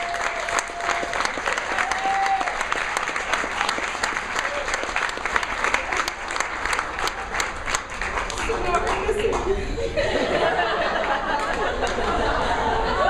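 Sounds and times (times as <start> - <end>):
audience cheering: 0.0 - 7.6
audience applauding: 0.0 - 9.6, 10.6 - 13.0.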